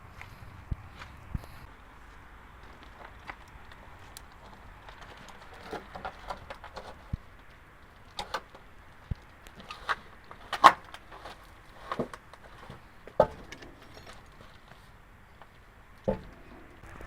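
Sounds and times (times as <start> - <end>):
tools clicking and knocking: 8.0 - 14.7.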